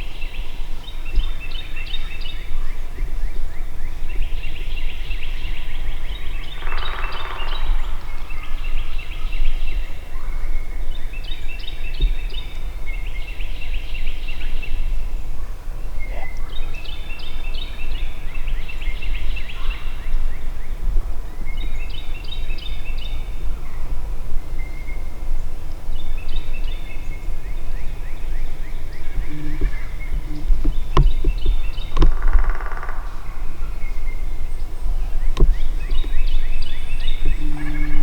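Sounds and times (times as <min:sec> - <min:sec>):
other birds calling: 0:21.6 - 0:38.0
steady low rumble: 0:26.9 - 0:38.0
wild turkeys gobbling: 0:28.8 - 0:38.0.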